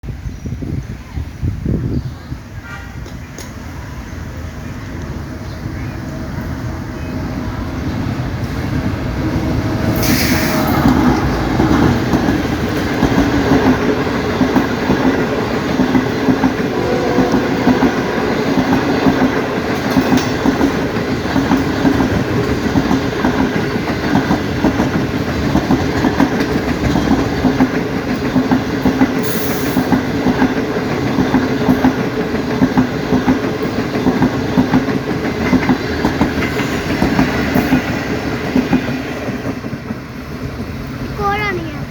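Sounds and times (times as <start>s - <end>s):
train wheels clicking on rails: 3.0s - 41.8s
high hiss: 9.8s - 12.9s, 29.2s - 29.9s.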